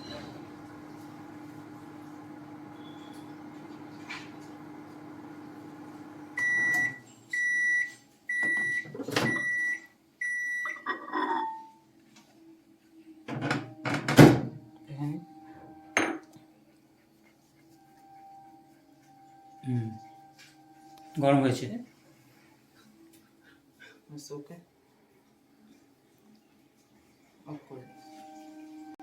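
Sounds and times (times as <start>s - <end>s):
microwave oven humming: 0.0s - 9.8s
microwave beeps: 0.0s - 10.9s.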